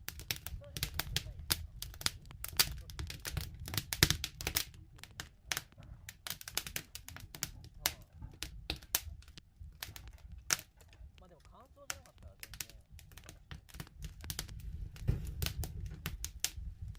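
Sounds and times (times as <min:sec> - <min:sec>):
wood fire crackling: 0:00.0 - 0:16.9.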